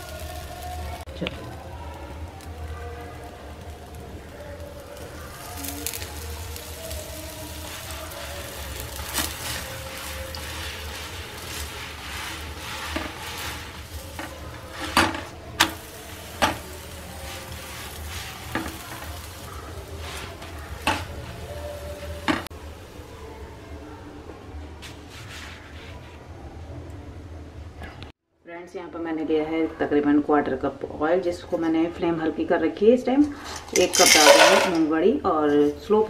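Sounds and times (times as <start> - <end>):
oil sizzling under pancake: 0.0 - 23.2, 33.4 - 34.8
spatula scraping pan: 5.5 - 22.5, 33.3 - 34.8.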